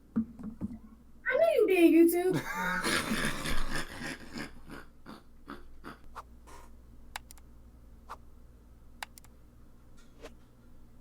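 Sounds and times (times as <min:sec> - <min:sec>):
low steady hum: 0:00.0 - 0:11.0
typing taps and clicks: 0:07.1 - 0:07.4, 0:09.0 - 0:09.3.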